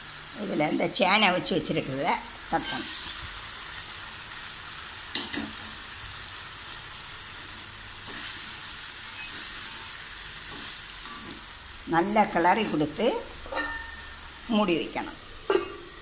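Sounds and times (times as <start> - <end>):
food sizzling in hot oil: 0.0 - 16.0
spatula strokes against pan: 8.0 - 11.5.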